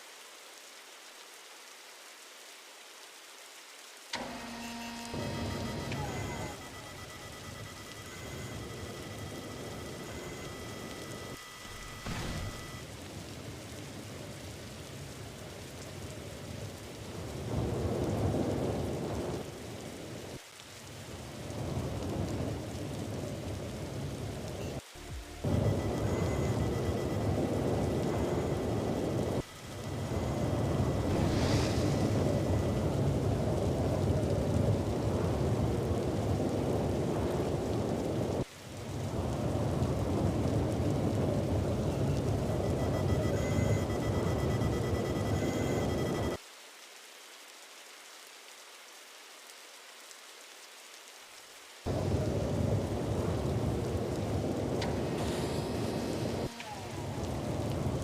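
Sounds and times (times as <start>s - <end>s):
rain falling: 0.0s - 58.0s
thunder rumbling: 5.1s - 46.4s, 51.9s - 58.0s
deep rolling thunder: 25.1s - 46.4s.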